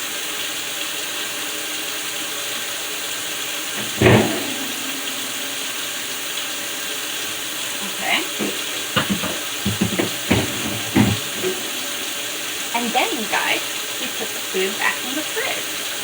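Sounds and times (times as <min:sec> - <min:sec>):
steady hiss: 0:02.0 - 0:16.0
fridge door rail knock: 0:03.8 - 0:06.1, 0:08.3 - 0:12.2.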